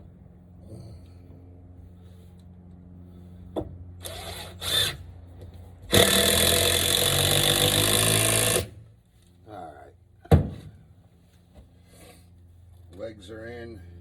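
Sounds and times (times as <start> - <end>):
power drill driving screws into wood: 4.0 - 5.0, 5.9 - 8.8.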